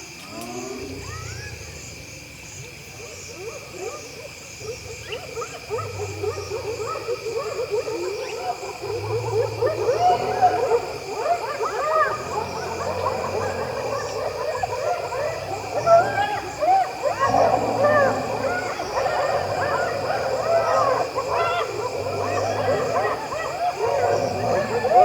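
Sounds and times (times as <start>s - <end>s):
insect chorus: 0.0s - 25.0s
low growls: 0.2s - 2.0s, 8.6s - 25.0s
hyenas giggling and whooping: 3.2s - 25.0s.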